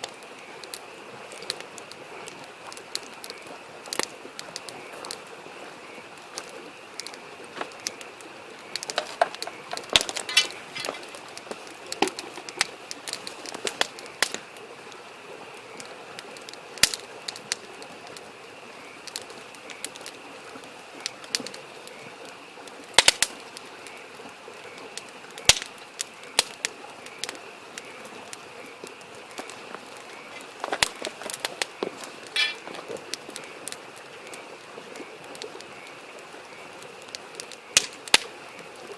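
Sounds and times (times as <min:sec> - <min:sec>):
campfire crackling and popping: 0:00.0 - 0:38.9
stream rushing: 0:00.8 - 0:18.8
frog trilling: 0:32.2 - 0:32.7.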